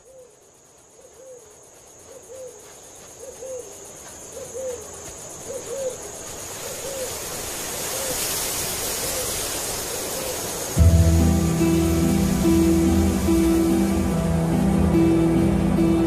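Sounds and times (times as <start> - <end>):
background hiss: 0.0 - 16.0
bird hooting: 4.4 - 6.0.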